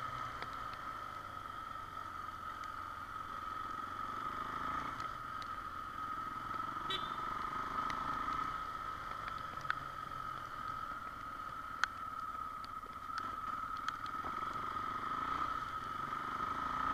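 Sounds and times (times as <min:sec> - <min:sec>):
motorcycle engine running: 0:00.0 - 0:16.9
sharp ticks: 0:04.9 - 0:06.0, 0:07.8 - 0:14.7.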